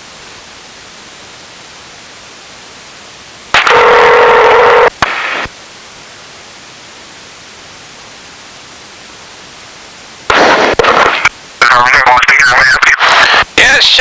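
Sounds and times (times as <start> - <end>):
steady radio hiss: 0.0 - 14.0
radio static bursts: 3.5 - 5.5, 10.3 - 14.0
radio click: 10.7 - 13.5.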